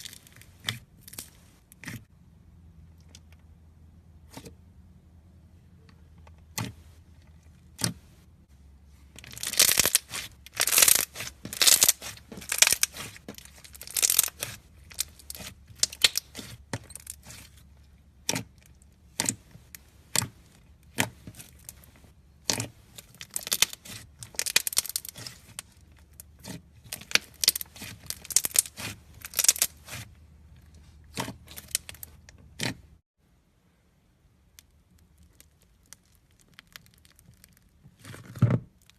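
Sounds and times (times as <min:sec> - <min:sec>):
bead slime crunchy crackling: 0:09.0 - 0:30.2, 0:31.0 - 0:32.8, 0:34.5 - 0:38.9.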